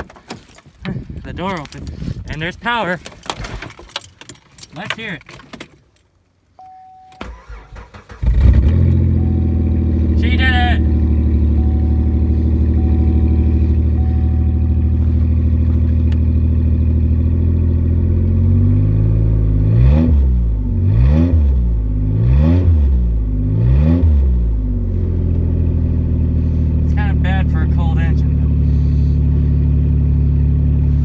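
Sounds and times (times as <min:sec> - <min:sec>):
car engine idling and revving: 0:06.6 - 0:31.0.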